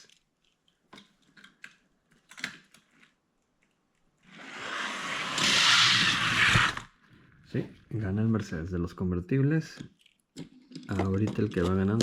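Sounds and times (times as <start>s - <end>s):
toy cars rolling on plastic track: 4.3s - 6.9s.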